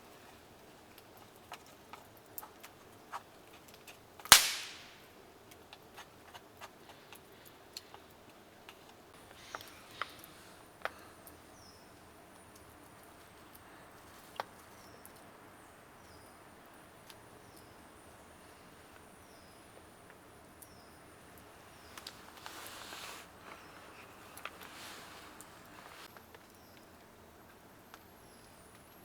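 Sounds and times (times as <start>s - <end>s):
wood fire crackling: 0.0s - 29.0s
loud sharp crack: 4.3s - 5.1s.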